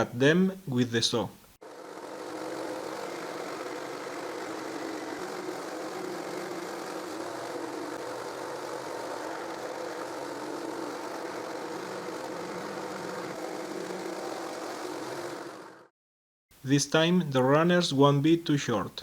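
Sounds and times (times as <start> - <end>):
jigsaw cutting plywood: 1.6 - 15.9.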